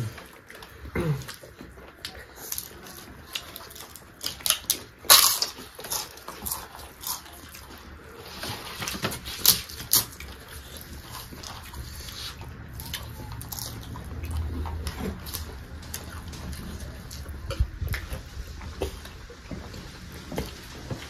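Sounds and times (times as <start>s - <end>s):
wet chewing and lip-smacking: 0.0s - 21.0s.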